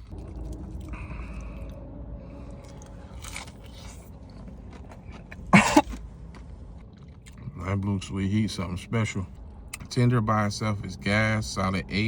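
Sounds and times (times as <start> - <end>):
person chewing crispy food: 0.0 - 7.6
cough-like vocal burst: 5.5 - 6.0.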